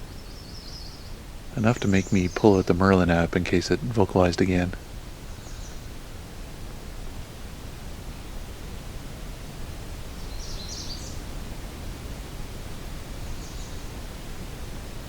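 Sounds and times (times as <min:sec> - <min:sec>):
low outdoor background rumble: 0:00.0 - 0:15.0
songbird calling: 0:00.1 - 0:04.5, 0:05.2 - 0:05.9, 0:10.1 - 0:11.2, 0:13.2 - 0:13.9.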